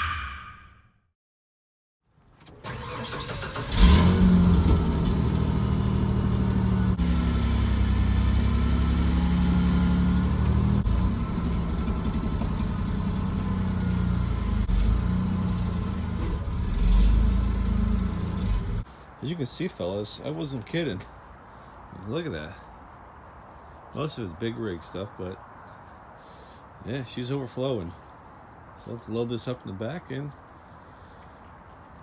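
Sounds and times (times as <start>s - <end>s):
engine starting and revving: 2.6s - 18.8s.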